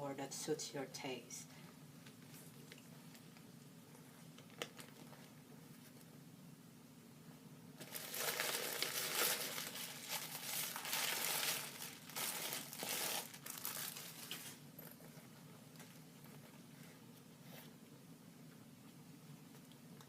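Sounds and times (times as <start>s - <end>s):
packaging crinkling: 7.8s - 14.9s.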